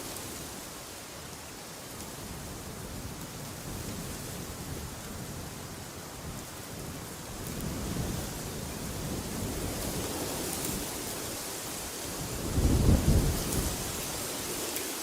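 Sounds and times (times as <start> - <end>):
wind blowing in gusts: 0.0 - 15.0.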